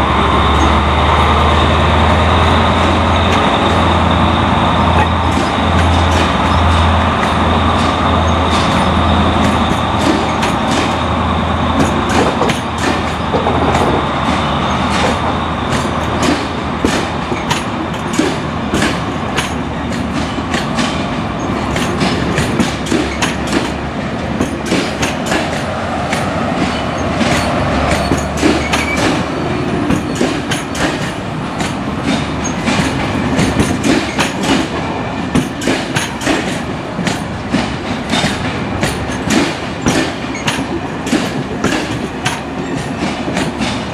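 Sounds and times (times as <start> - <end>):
train rumbling on rails: 0.0 - 43.9.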